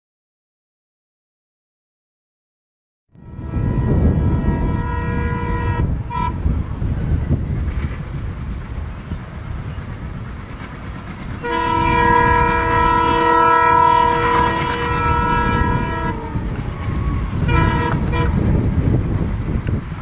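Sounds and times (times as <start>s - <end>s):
locomotive horn blast: 3.2s - 6.6s, 11.4s - 18.6s
low rumble of train: 3.2s - 20.0s.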